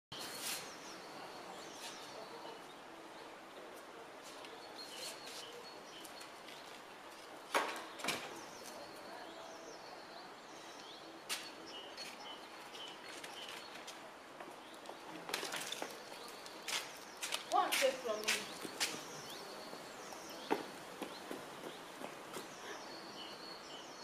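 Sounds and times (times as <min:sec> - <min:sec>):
small birds chirping: 0:00.1 - 0:24.0.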